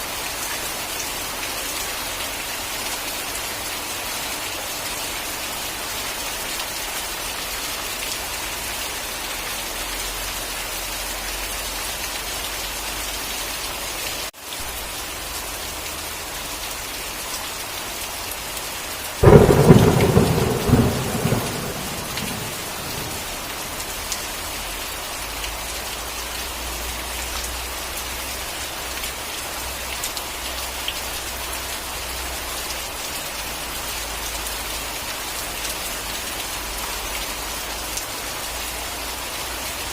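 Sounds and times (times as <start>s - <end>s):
steady rain hissing: 0.0s - 39.9s
loud thunderclap rumbling: 19.2s - 23.5s.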